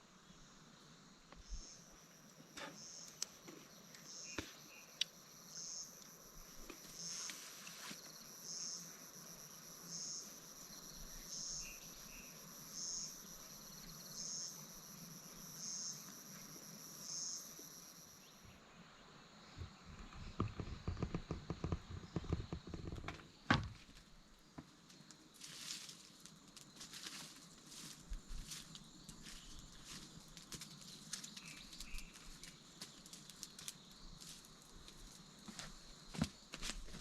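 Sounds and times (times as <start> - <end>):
insect chirping: 0.0 - 37.0
insect buzzing: 0.2 - 23.3
footsteps on forest floor: 25.4 - 37.0.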